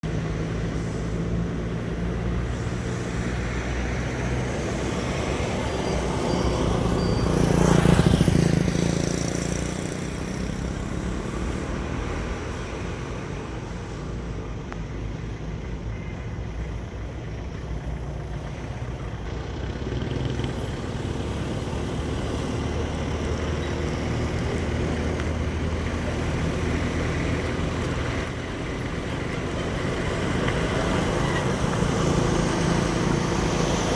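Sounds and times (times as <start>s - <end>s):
trucks and traffic engines: 0.0s - 33.9s
vehicle passing close: 0.2s - 14.0s.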